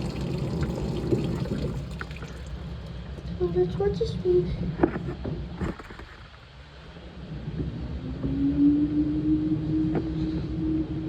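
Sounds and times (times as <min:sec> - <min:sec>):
washing machine motor humming: 0:00.0 - 0:02.7.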